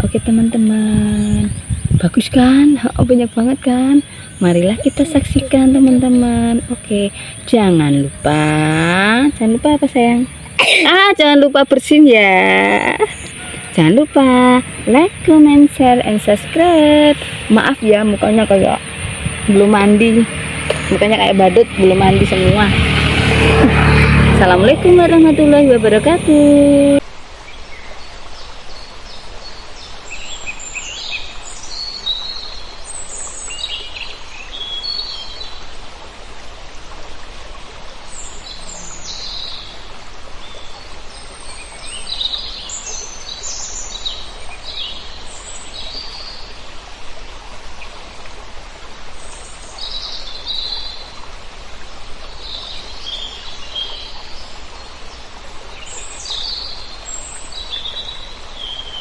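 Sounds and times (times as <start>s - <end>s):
flock of birds chirping: 13.0s - 22.7s.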